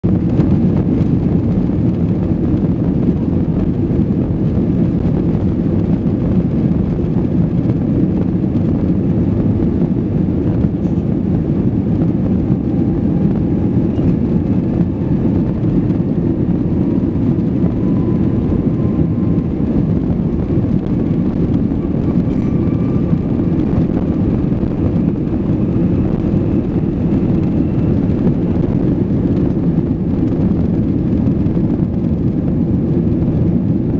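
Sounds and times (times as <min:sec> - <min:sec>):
jet engine whine: 0:00.0 - 0:33.9
jet engines rumbling: 0:00.0 - 0:33.9.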